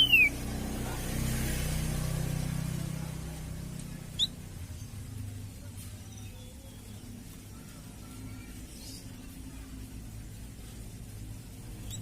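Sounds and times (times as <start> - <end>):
sharp bird chirp: 0.0 - 0.4.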